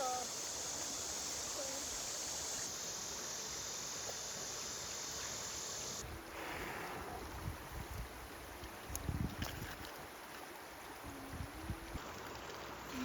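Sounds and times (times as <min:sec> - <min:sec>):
high insect drone: 0:00.0 - 0:06.0
flowing water: 0:00.0 - 0:13.0.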